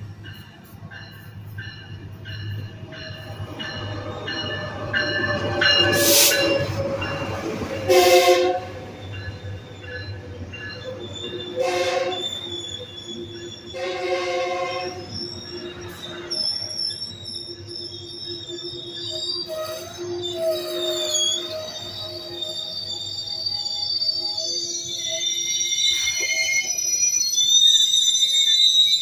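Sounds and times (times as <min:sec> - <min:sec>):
steel wheels squealing on rails: 0:00.0 - 0:29.0
train rumbling: 0:00.0 - 0:29.0
train horn blasts: 0:07.8 - 0:09.0, 0:11.4 - 0:12.5, 0:13.7 - 0:15.2, 0:19.5 - 0:23.0.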